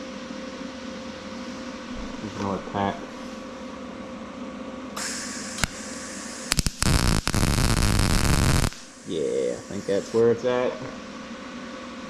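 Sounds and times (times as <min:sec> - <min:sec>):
welder arc sputtering and crackling: 0:05.0 - 0:10.2.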